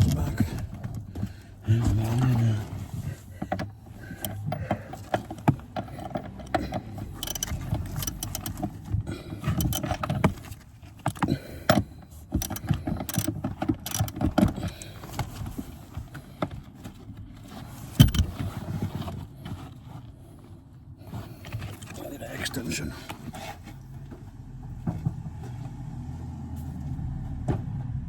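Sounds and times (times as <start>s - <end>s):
ratchet clicking on a bolt: 6.0s - 8.7s, 9.5s - 10.0s, 11.1s - 14.6s.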